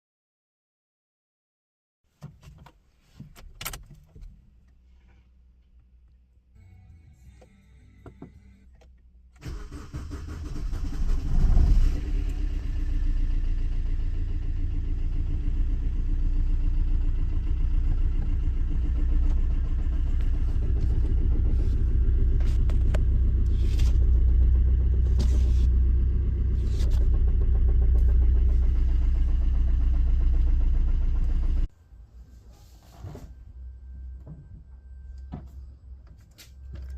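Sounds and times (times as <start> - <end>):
diesel engine cranking and idling: 6.6 - 31.7.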